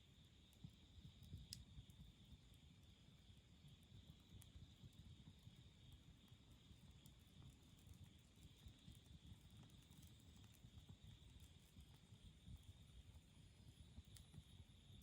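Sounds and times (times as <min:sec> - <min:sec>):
campfire crackling: 0:04.1 - 0:15.0.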